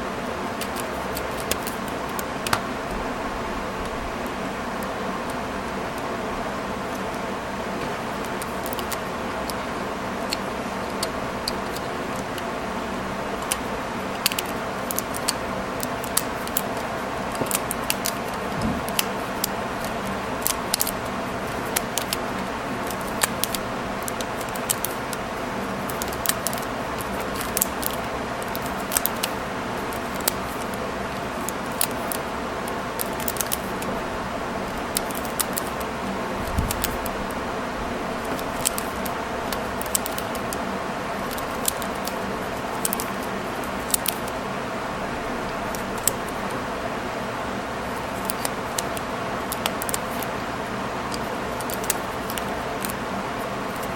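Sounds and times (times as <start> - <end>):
steady background hum: 0.0 - 53.9.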